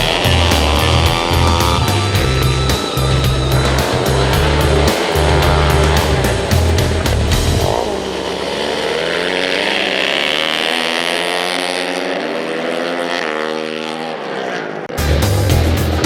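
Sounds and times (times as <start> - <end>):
racing motorcycle engine revving: 0.0 - 16.0.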